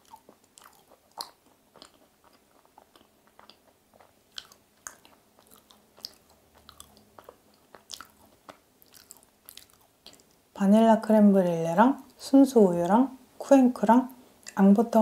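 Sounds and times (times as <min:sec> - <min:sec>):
chewing with mouth closed: 0:00.0 - 0:10.4.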